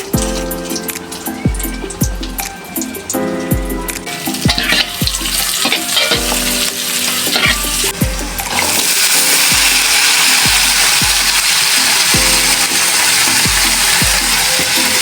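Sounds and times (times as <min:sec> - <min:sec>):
background music with drum beat: 0:00.0 - 0:15.0
food sizzling in a pan: 0:04.0 - 0:15.0.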